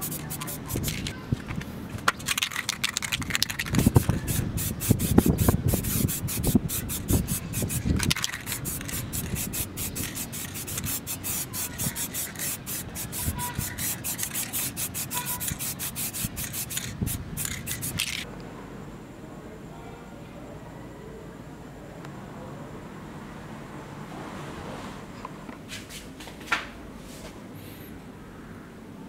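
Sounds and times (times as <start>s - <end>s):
spray paint can hissing: 0.0s - 1.1s, 2.2s - 18.3s.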